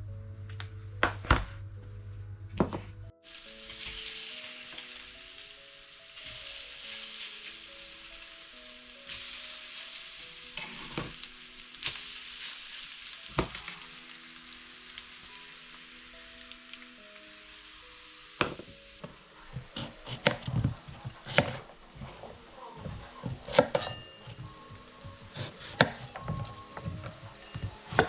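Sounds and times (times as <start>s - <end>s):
fritters sizzling in oil: 3.3s - 28.0s.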